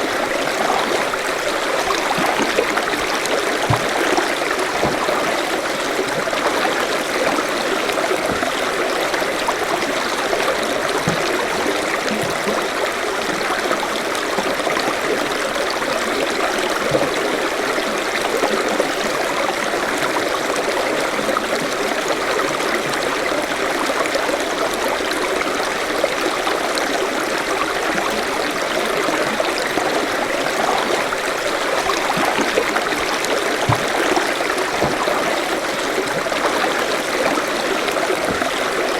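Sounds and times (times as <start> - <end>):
stream trickling over stones: 0.0 - 38.9.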